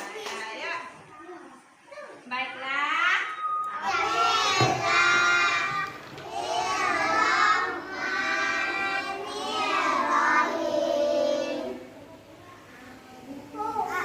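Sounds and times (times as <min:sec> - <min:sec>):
young children singing: 0:03.8 - 0:14.0.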